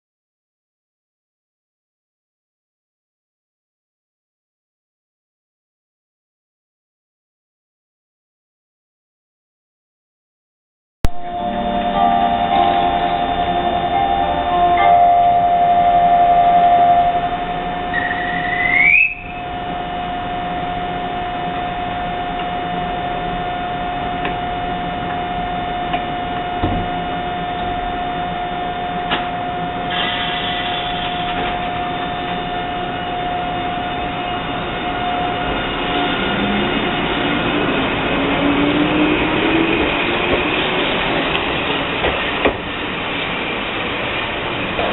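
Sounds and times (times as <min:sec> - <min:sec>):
electric train hum: 0:11.0 - 0:44.9
train motor whine: 0:11.1 - 0:44.9.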